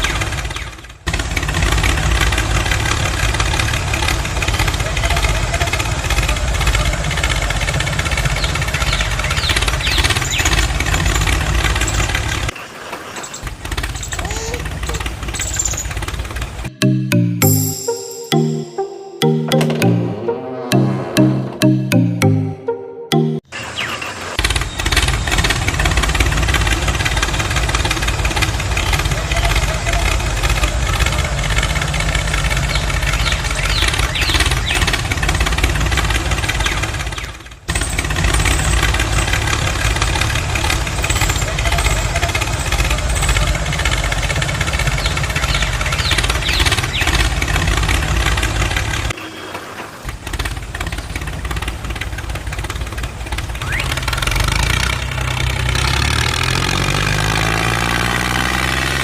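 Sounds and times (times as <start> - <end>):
engine running with pulsing low end: 0.0 - 12.5, 24.4 - 49.2, 50.1 - 58.4.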